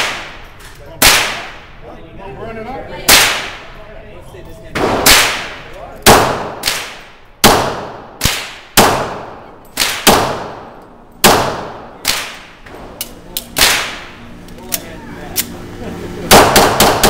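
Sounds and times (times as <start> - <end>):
fainter gunshots: 4.8 - 12.5, 16.3 - 17.0
pistol shots with ringing tail: 4.8 - 12.5, 16.3 - 17.0.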